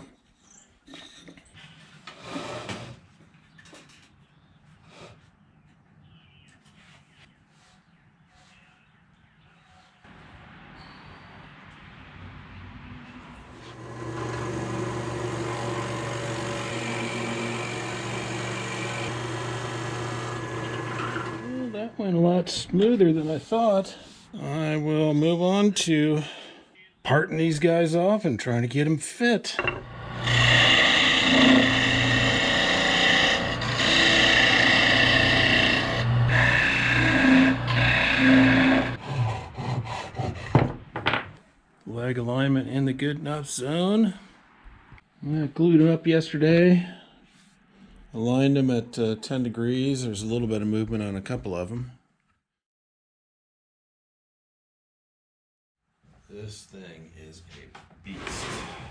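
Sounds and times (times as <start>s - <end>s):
lathe motor humming: 13.5s - 22.0s, 29.8s - 39.0s
lathe tool scraping wood: 13.5s - 22.9s, 29.6s - 40.6s
electric drill boring into wood: 13.6s - 21.8s, 29.7s - 39.0s.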